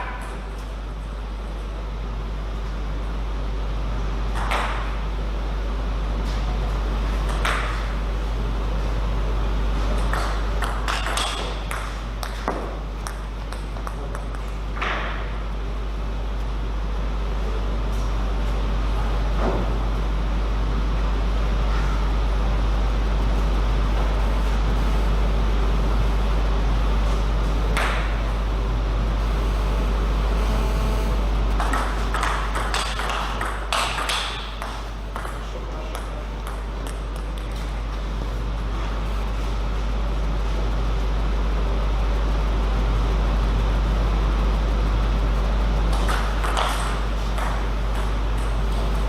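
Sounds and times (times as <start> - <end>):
indoor hall background hum: 0.0 - 49.0
low hum: 23.1 - 35.2, 46.8 - 49.0.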